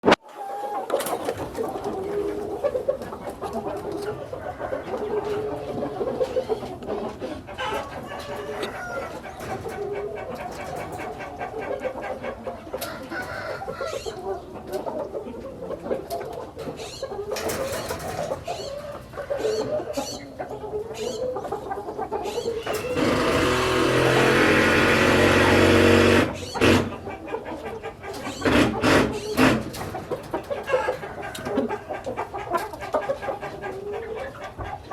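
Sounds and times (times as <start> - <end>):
chickens clucking: 0.0 - 34.9
loud steady noise: 22.7 - 26.9.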